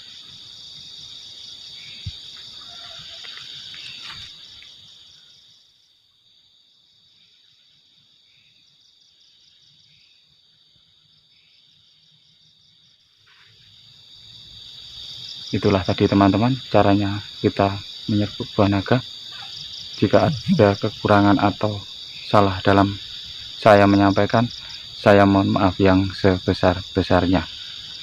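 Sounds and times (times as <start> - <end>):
crickets trilling: 0.0 - 28.0.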